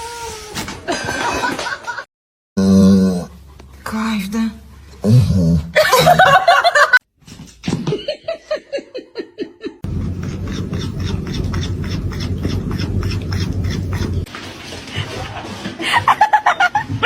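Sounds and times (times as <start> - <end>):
low rumble: 9.8 - 14.3.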